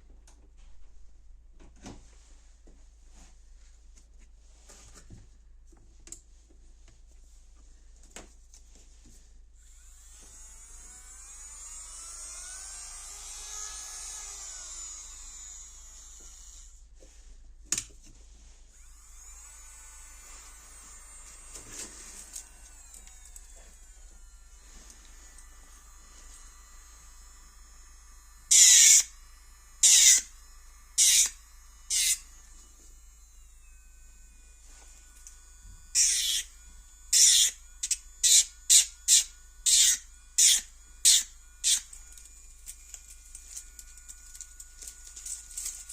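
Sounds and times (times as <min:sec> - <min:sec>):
electric nail drill whining: 0:09.6 - 0:17.0, 0:18.7 - 0:45.9.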